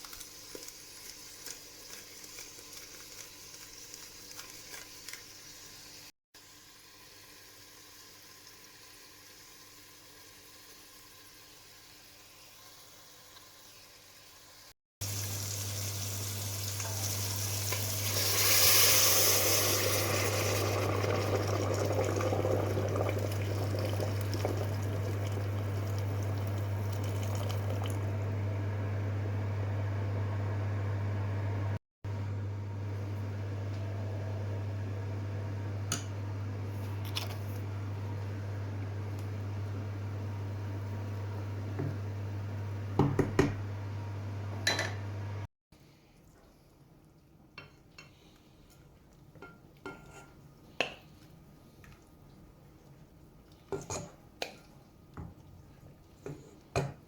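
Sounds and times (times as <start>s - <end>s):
pot hissing and bubbling: 15.0s - 28.5s.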